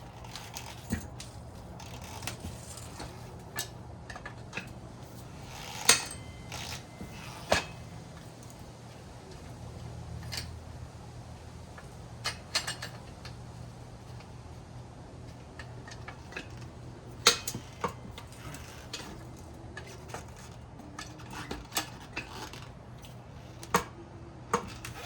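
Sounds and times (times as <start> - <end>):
metallic tool clicks and clanks: 5.5 - 7.8.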